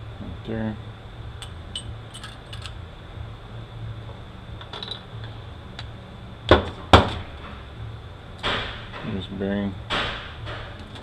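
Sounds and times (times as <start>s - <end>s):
steady low hum: 0.0s - 11.0s
loud knocks: 9.9s - 10.8s.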